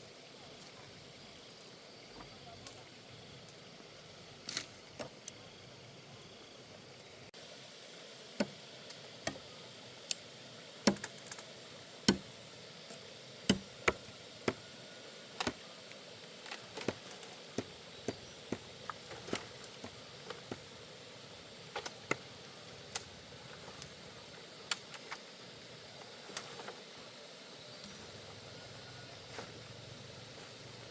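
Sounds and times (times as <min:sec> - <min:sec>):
blade chopping wood: 0:10.9 - 0:11.3, 0:12.1 - 0:12.3, 0:13.5 - 0:14.6, 0:16.6 - 0:20.7.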